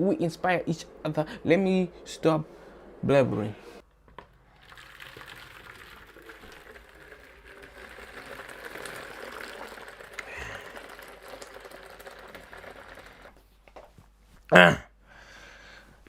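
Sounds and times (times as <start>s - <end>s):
water boiling: 4.2s - 13.4s.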